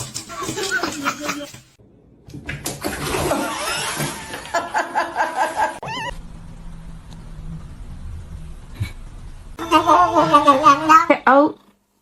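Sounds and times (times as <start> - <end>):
steady low hum: 6.1 - 10.9.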